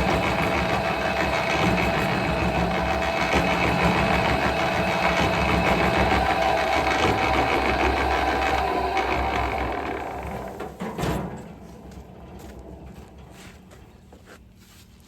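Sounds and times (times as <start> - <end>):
small engine running steadily: 0.0 - 10.8.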